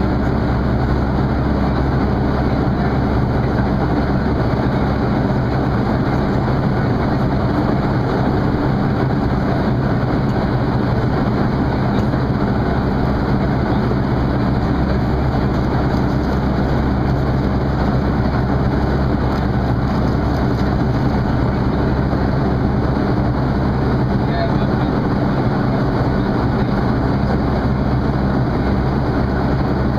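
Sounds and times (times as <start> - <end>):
jet engine drone: 0.0 - 29.9.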